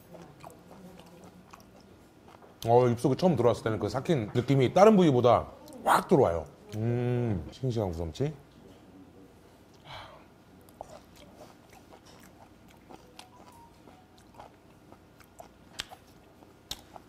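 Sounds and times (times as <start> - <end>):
soft chewing: 0.0 - 3.3, 8.5 - 17.0
small mouth clicks: 15.7 - 16.1.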